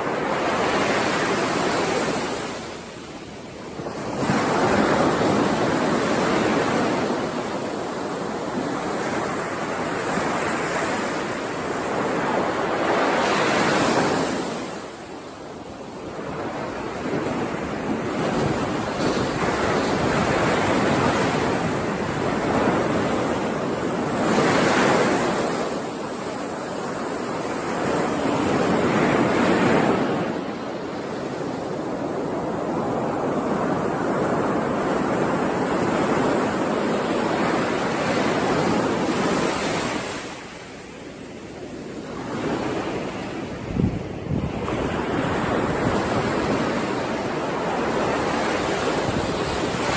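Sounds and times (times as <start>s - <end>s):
waves washing onto shore: 0.0s - 49.9s.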